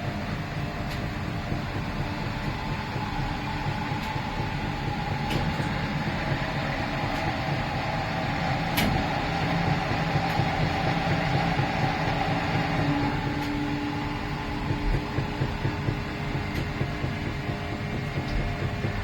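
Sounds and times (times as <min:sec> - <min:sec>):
washing machine drum noise: 0:00.0 - 0:19.0
washing machine motor hum: 0:00.0 - 0:19.0
click: 0:08.7 - 0:09.0.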